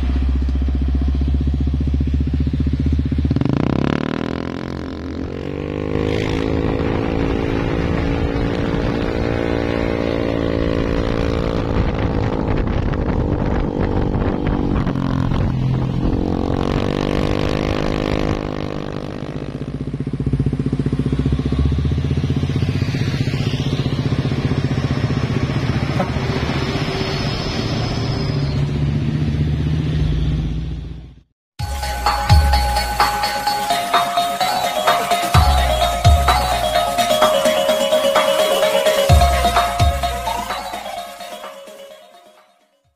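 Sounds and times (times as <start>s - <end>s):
motorcycle engine: 0.0s - 33.6s
passing road traffic: 0.0s - 42.7s.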